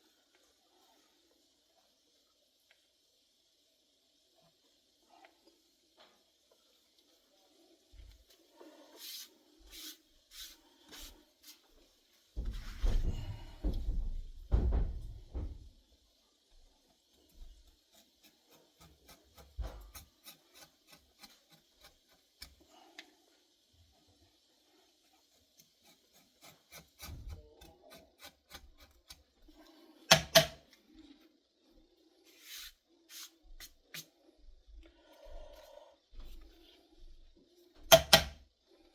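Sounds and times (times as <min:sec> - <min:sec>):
bumping and rubbing on bench: 0:12.4 - 0:15.7
edge beveler scraping leather: 0:18.0 - 0:22.6, 0:25.6 - 0:29.3.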